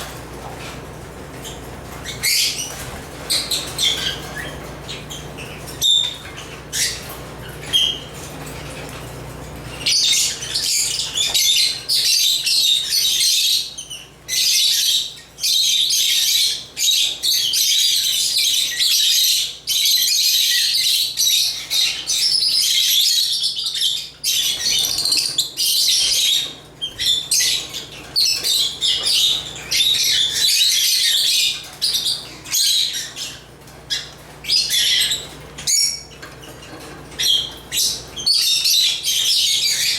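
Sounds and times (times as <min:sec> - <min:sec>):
birds chattering and chirping: 0:00.0 - 0:39.9.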